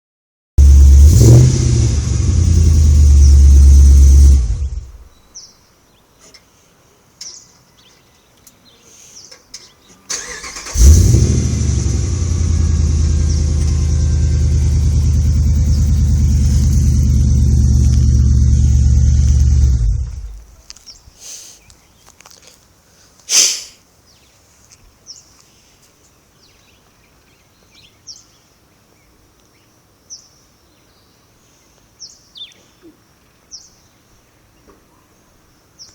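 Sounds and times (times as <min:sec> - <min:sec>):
engine revving and idling loudly: 0:00.6 - 0:05.1, 0:10.6 - 0:20.6.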